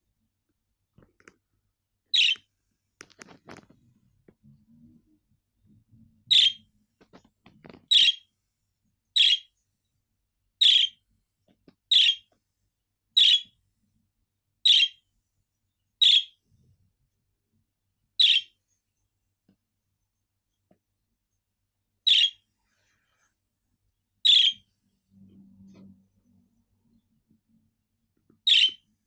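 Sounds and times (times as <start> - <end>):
budgerigar chirps: 2.2 - 2.4, 6.3 - 6.6, 7.9 - 8.2, 9.2 - 9.5, 10.6 - 11.0, 11.9 - 12.2, 13.2 - 13.5, 14.7 - 15.0, 16.0 - 16.4, 18.2 - 18.5, 22.1 - 22.4, 24.2 - 24.6, 28.4 - 28.8.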